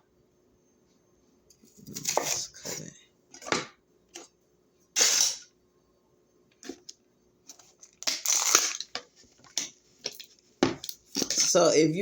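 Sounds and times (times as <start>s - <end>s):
knife cutting crisp vegetable: 1.8s - 2.8s.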